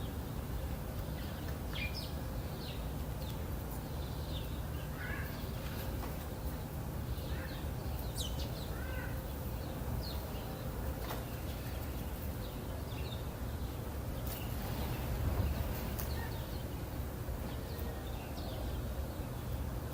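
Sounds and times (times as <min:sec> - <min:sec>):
low wind rumble: 0:00.0 - 0:19.9
birds chirping and whistling: 0:01.0 - 0:05.7, 0:06.5 - 0:16.8.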